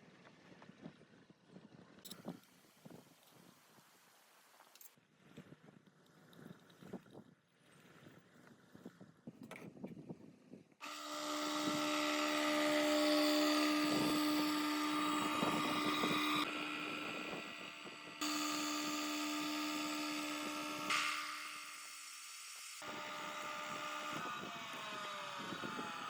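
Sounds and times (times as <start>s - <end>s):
power tool motor whining: 10.8s - 26.0s.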